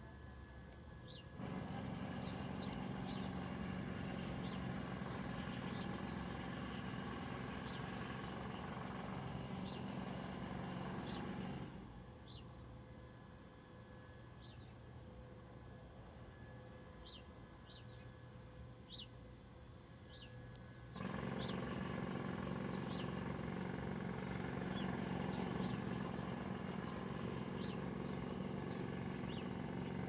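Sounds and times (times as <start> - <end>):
steady low hum: 0.0 - 30.0
small birds chirping: 1.0 - 6.8, 7.5 - 8.6, 11.0 - 11.5, 12.2 - 12.7, 14.4 - 14.8, 17.0 - 18.1, 18.8 - 19.2, 20.0 - 29.8.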